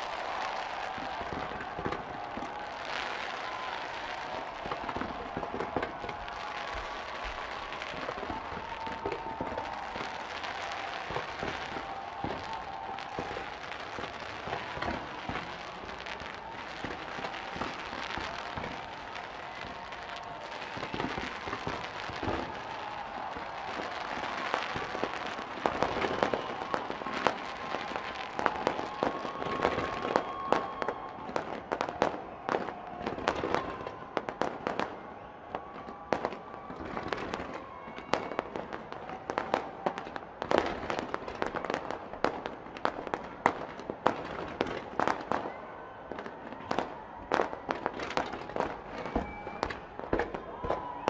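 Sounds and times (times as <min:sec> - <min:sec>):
fireworks bangs and crackling: 0:00.0 - 0:51.0.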